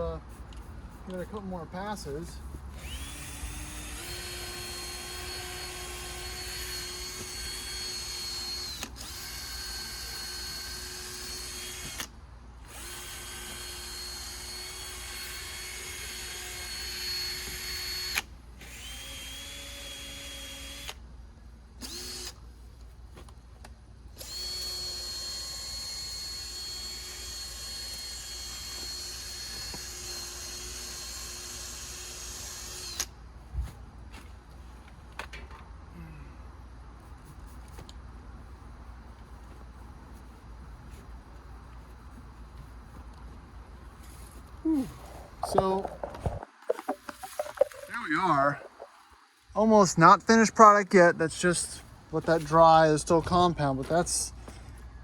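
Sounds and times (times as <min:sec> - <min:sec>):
power drill sanding plastic: 0:02.8 - 0:12.0.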